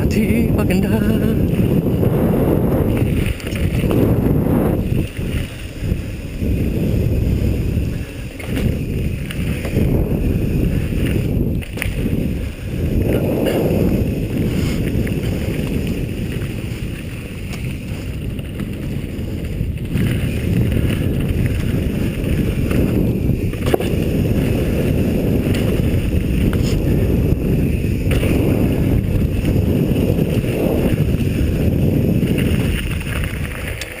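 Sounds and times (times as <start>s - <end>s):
low rumble from rough trail: 0.0s - 34.0s
wind buffeting microphone: 0.0s - 34.0s.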